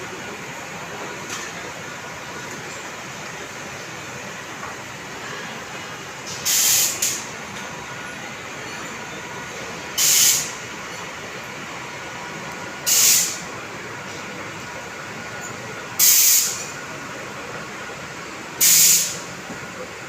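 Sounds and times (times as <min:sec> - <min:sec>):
low train and platform rumble: 0:00.0 - 0:20.0
compressed air hisses: 0:06.3 - 0:07.2, 0:10.0 - 0:10.6, 0:12.9 - 0:13.4, 0:16.0 - 0:16.7, 0:18.6 - 0:19.3.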